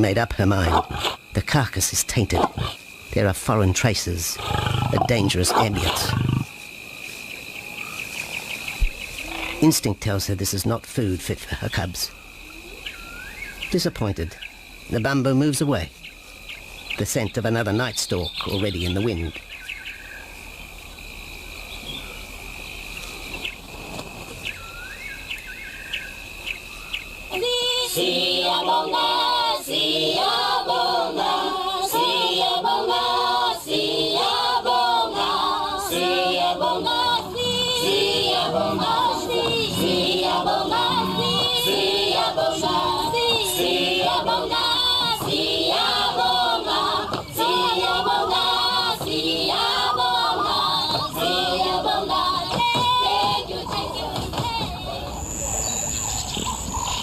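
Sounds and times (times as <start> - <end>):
high insect trill: 0.0 - 54.1
bird chirps: 15.6 - 20.4, 55.2 - 57.0
choir singing: 27.3 - 55.4.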